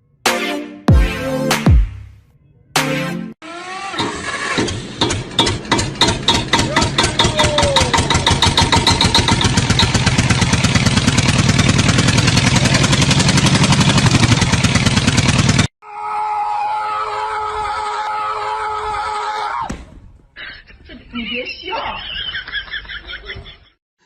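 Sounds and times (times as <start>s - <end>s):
engine pulses speeding up: 3.4s - 15.7s.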